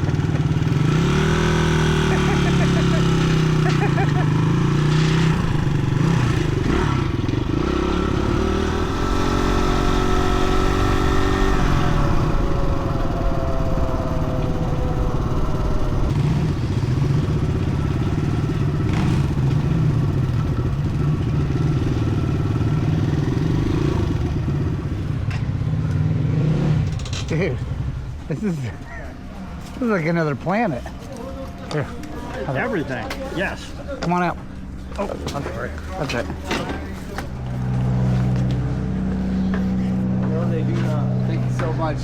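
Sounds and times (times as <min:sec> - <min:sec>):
dirt bike engine running: 0:00.0 - 0:28.4
road and wind noise: 0:00.0 - 0:42.0.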